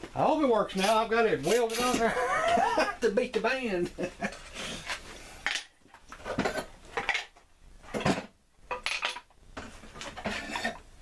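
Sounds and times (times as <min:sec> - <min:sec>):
metal hammers clanking: 0:00.7 - 0:02.2.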